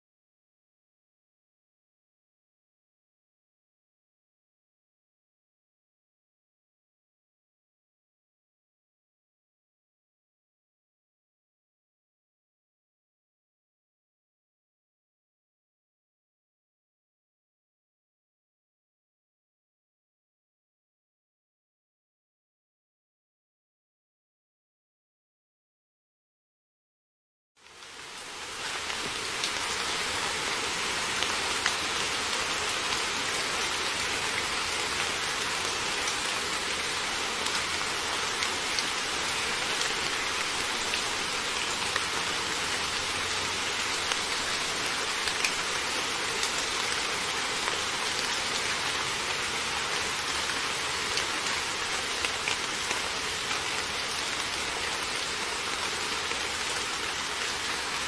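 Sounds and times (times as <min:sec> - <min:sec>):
heavy rain falling: 0:27.6 - 0:58.0.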